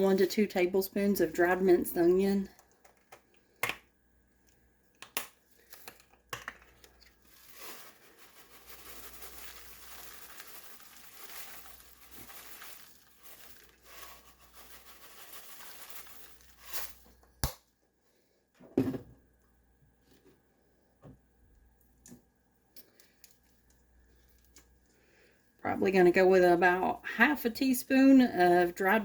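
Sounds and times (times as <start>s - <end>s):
packaging crinkling and rustling: 5.4s - 17.4s.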